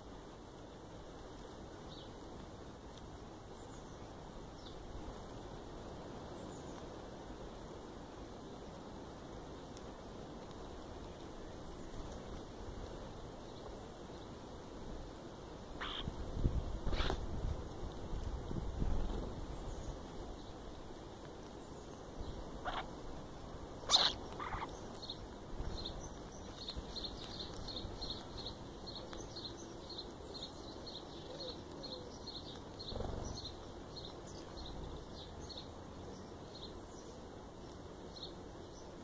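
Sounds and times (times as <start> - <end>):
birds chirping: 15.6 - 16.2, 21.4 - 39.0
harsh bird call: 15.8 - 16.1, 23.9 - 24.7.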